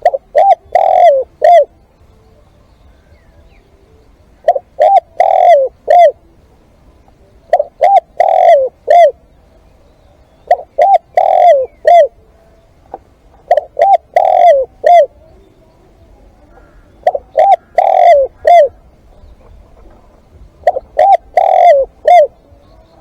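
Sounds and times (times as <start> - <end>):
dove cooing: 0.0 - 23.0.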